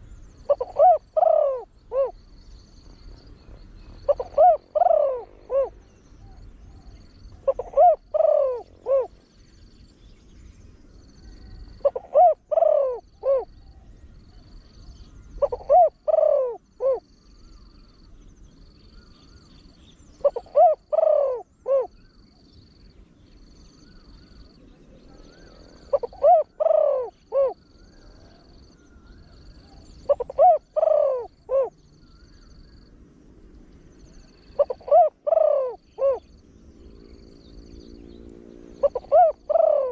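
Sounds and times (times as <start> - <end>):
dove cooing: 0.0 - 2.4, 3.0 - 9.2, 11.2 - 13.7, 15.3 - 17.1, 20.2 - 22.1, 24.9 - 32.8, 34.1 - 37.2, 38.6 - 39.9.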